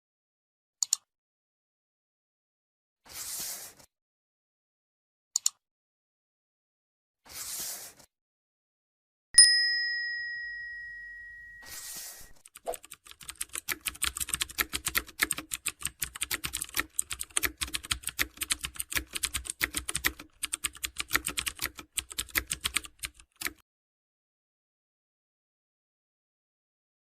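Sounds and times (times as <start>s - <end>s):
computer keyboard typing: 12.4s - 23.6s.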